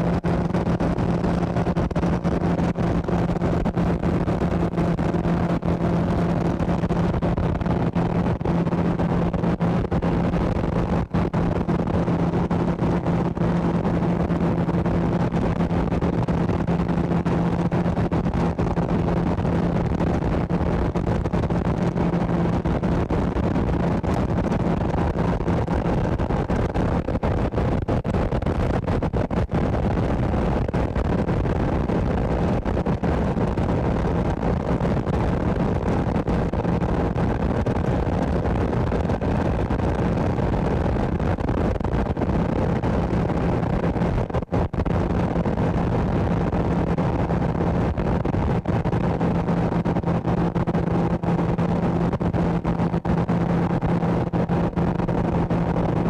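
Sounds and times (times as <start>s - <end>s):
motorboat motor humming: 0.0s - 34.4s.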